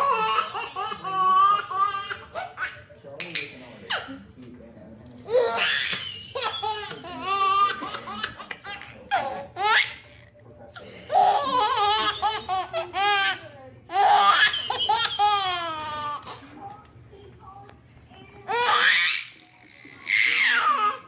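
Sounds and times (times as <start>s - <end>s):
baby laughing: 0.0s - 4.0s, 5.3s - 10.1s, 11.1s - 16.4s.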